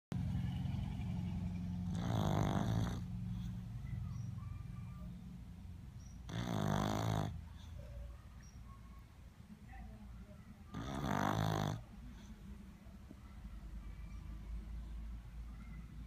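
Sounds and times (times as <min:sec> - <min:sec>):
dog snoring: 0:01.8 - 0:03.5, 0:06.1 - 0:07.4, 0:10.7 - 0:12.3
low rumble of breathing: 0:03.0 - 0:04.0.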